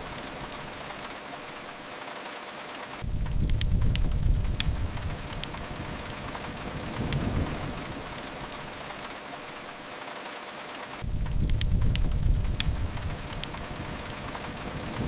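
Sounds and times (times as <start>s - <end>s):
rain hissing against a window: 0.0s - 15.0s
wood fire crackling: 0.0s - 15.0s
low rumble: 3.0s - 8.7s, 11.0s - 15.0s.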